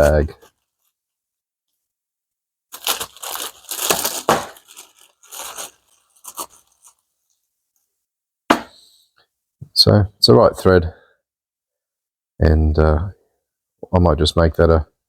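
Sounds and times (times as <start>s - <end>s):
bag crinkling and rustling: 2.7s - 7.0s.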